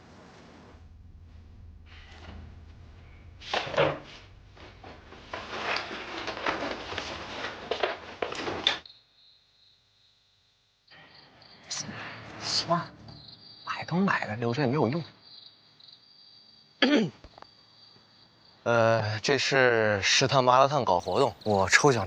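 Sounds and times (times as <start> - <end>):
objects knocking and rattling: 1.9 - 8.8
crickets chirring: 2.1 - 22.0.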